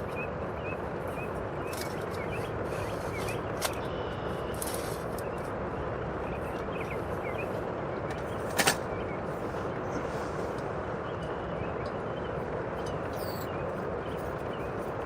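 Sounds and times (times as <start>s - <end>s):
faint bird chirps: 0.0s - 5.5s, 11.0s - 15.0s
rain on tent fabric: 2.7s - 5.3s.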